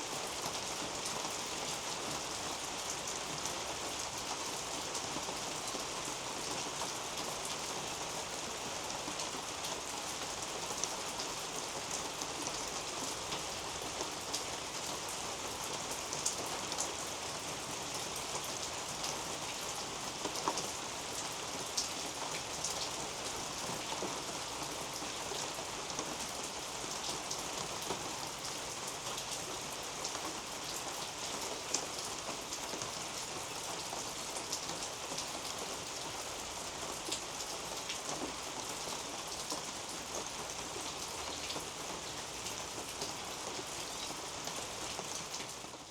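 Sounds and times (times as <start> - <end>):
rain pattering on leaves: 0.0 - 45.9.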